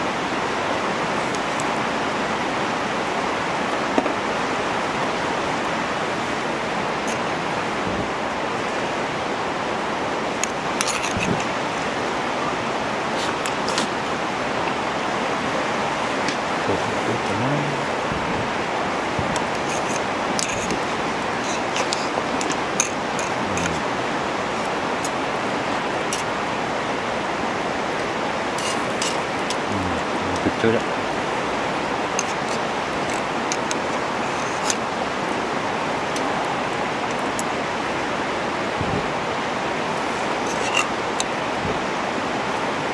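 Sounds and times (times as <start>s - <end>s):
steady rushing noise: 5.4s - 25.8s.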